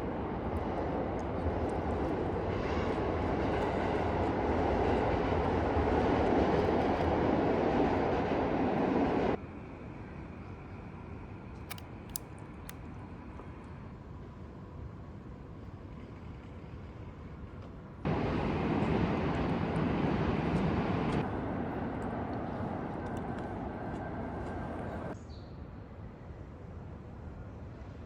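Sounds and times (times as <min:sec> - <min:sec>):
sharp clicks: 0:11.6 - 0:12.8
loud steady rumbling: 0:18.1 - 0:25.2.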